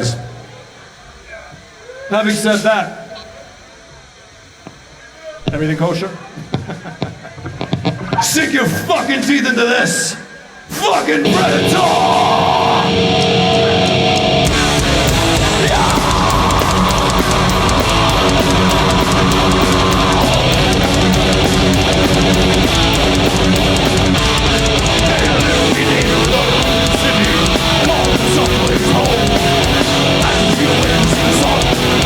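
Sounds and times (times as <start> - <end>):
heavy metal band playing: 11.2 - 32.0.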